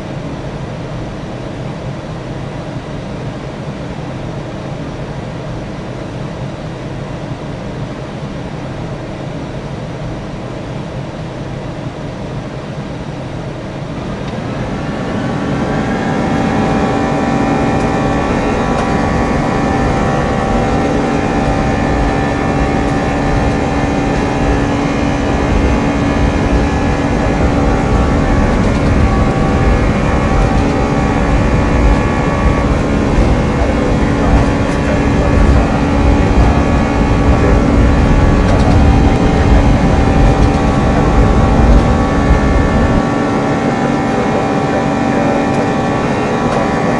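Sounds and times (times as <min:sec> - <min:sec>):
jet engines spooling up: 0:00.0 - 0:46.9.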